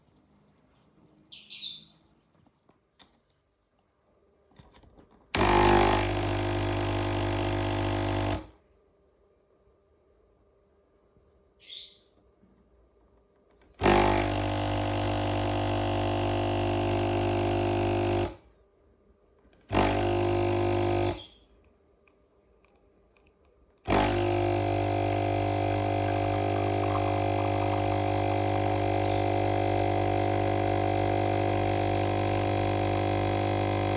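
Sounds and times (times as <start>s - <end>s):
espresso machine pump buzzing: 5.4s - 8.5s, 13.8s - 18.4s, 19.6s - 21.4s, 23.8s - 33.9s.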